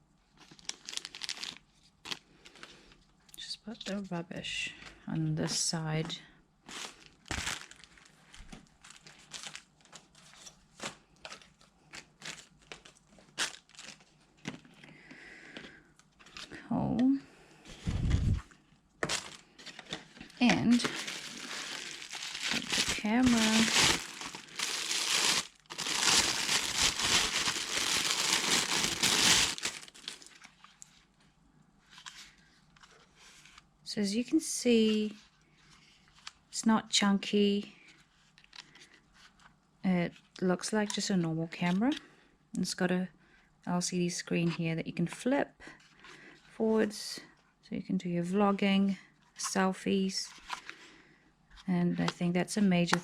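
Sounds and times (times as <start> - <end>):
packaging crinkling and rustling: 0.4 - 3.0, 6.7 - 14.9, 15.6 - 16.6, 19.0 - 31.0.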